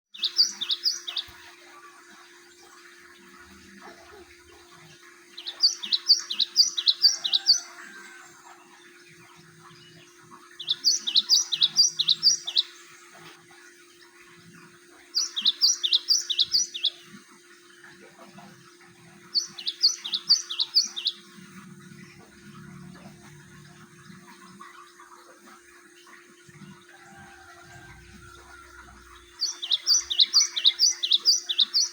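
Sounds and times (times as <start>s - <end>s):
bird singing sharp repeated notes: 0.1s - 1.4s, 5.3s - 7.6s, 9.8s - 12.9s, 15.1s - 17.1s, 19.2s - 21.3s, 29.0s - 31.9s.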